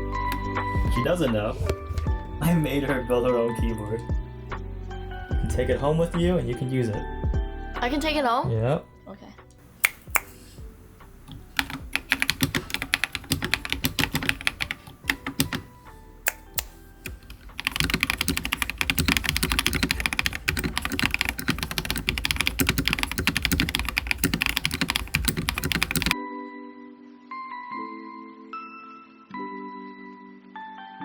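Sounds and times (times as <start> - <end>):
typing on mechanical keyboard: 11.3 - 26.2.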